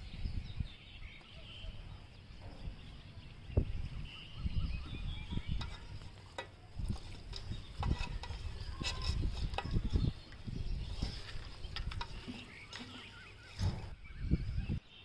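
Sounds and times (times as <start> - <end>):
food being mixed in bowl: 5.5 - 13.7.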